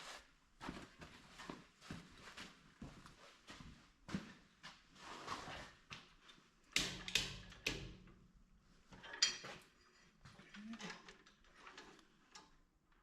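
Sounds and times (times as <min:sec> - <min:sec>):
metal clanks and knocks: 0:09.0 - 0:09.8.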